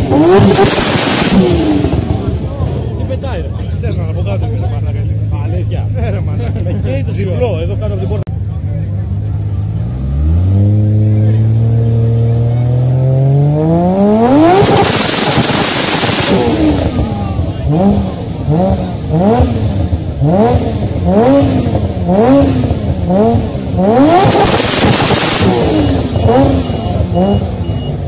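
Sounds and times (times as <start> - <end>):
car engine revving: 0.0 - 28.0
exhaust rush: 0.0 - 28.0.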